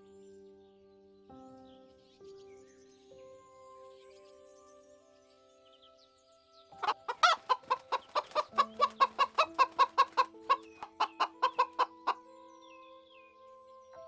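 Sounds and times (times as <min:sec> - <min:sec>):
calm music with sustained notes: 0:00.0 - 0:14.0
chicken clucking: 0:06.8 - 0:12.2.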